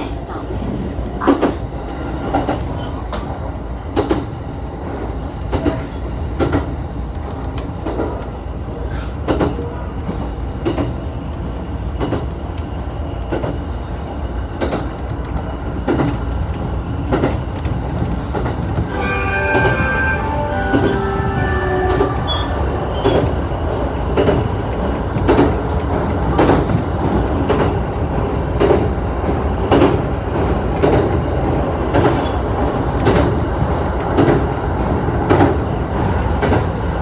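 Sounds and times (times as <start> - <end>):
train rumbling: 0.0 - 37.0
steady tones: 18.9 - 23.8.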